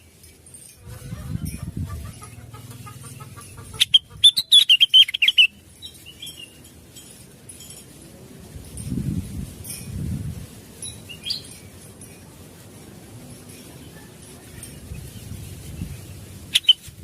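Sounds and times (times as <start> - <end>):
bird singing chattering notes: 1.0 - 6.7, 10.9 - 11.7, 14.7 - 16.9.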